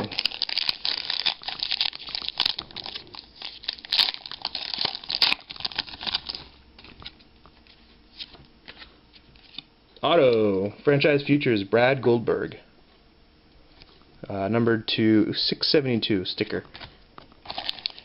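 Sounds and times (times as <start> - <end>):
foil wrapper tearing and crinkling: 0.0 - 6.6, 17.4 - 18.0.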